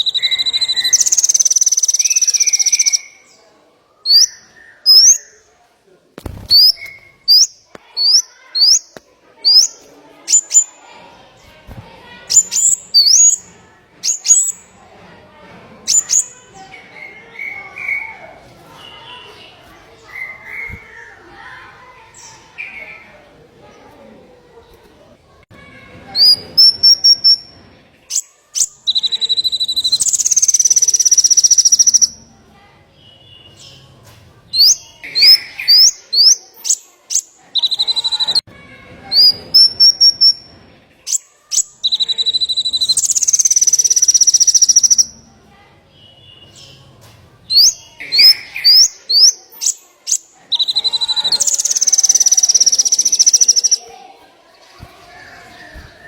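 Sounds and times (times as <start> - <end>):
songbird singing: 0.0 - 5.5, 6.5 - 10.8, 12.2 - 14.8, 15.8 - 21.2, 26.2 - 32.3, 34.6 - 38.5, 39.2 - 45.3, 47.5 - 53.9.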